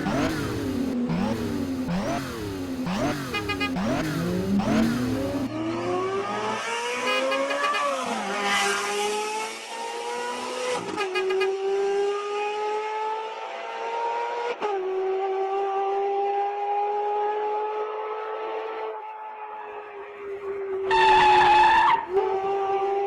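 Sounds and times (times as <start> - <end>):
vehicle engine revving: 0.0 - 17.8.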